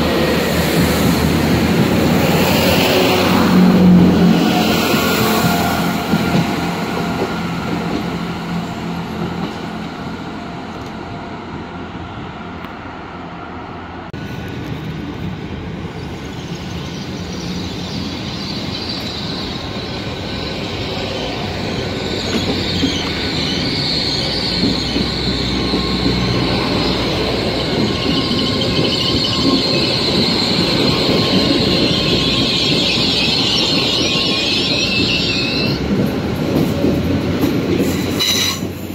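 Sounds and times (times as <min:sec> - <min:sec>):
train rumble: 0:00.0 - 0:38.9
high wheel squeal: 0:16.2 - 0:35.8, 0:37.8 - 0:38.8.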